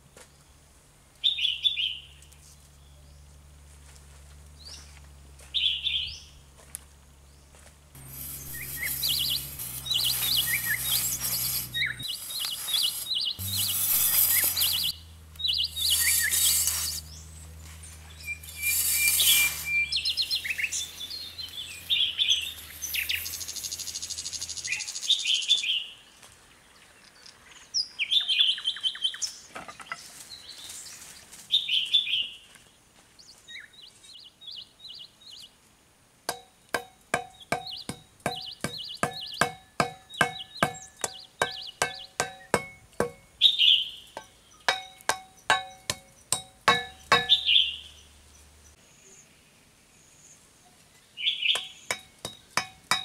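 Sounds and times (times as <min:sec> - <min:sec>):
small birds chirping: 0:04.5 - 0:06.4, 0:07.2 - 0:35.7, 0:36.3 - 0:53.0
shovel scraping sandy soil: 0:08.0 - 0:15.0, 0:15.6 - 0:23.7.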